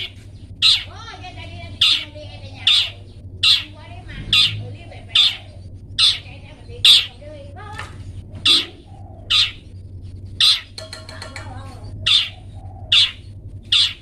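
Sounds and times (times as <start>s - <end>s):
faint bird chirps: 0.0s - 7.2s
shrike harsh calls: 0.0s - 14.0s.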